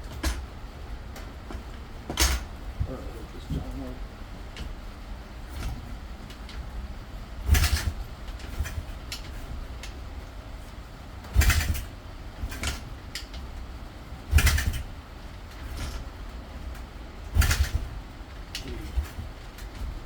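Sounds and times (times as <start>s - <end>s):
motorbike engine cranking: 7.4s - 9.9s, 11.3s - 13.4s, 14.3s - 14.9s, 17.3s - 18.0s.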